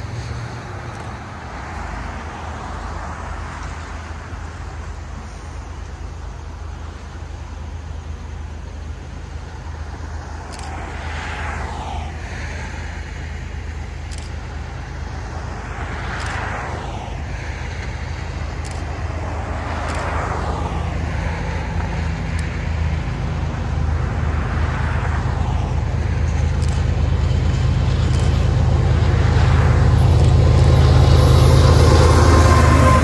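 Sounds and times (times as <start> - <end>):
diesel locomotive engine rumble: 0.0 - 33.0
hiss sweeping in pitch: 29.6 - 33.0.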